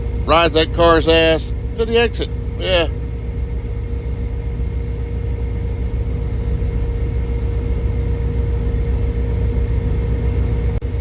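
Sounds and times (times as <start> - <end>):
road noise: 0.0 - 3.0
faint steady hum: 0.0 - 11.0
truck engine rumbling: 0.0 - 11.0.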